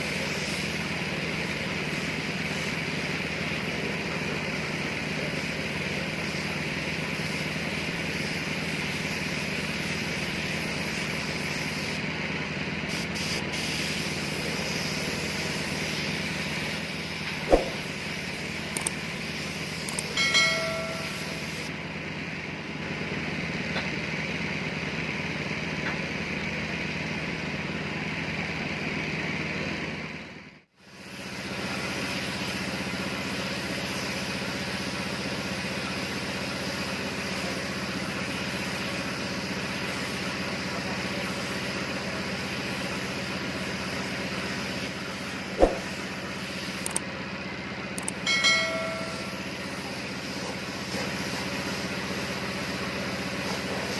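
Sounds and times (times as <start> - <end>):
single click: 17.5 - 17.8, 45.6 - 45.9, 46.8 - 47.0, 48.0 - 48.2.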